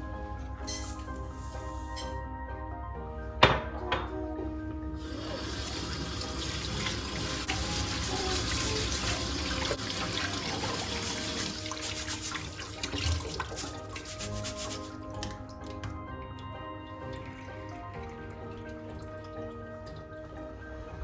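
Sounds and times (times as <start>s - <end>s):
soft background music: 0.0s - 21.0s
tap water running into sink: 5.0s - 20.5s.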